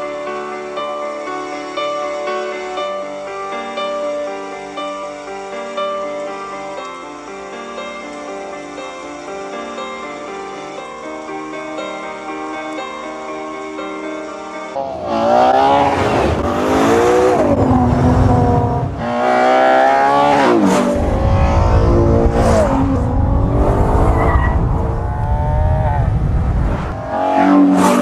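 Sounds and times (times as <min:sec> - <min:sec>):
car engine accelerating hard: 0:14.8 - 0:28.0.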